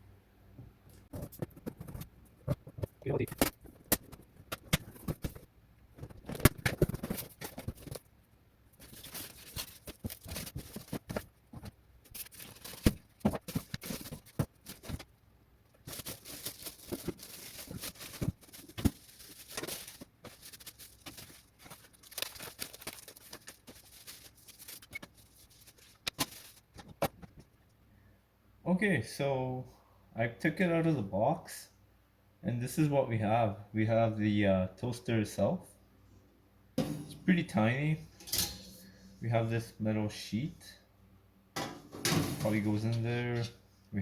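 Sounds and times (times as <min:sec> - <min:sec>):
packing material rustling: 0:02.7 - 0:08.1, 0:08.7 - 0:15.1, 0:15.7 - 0:26.8.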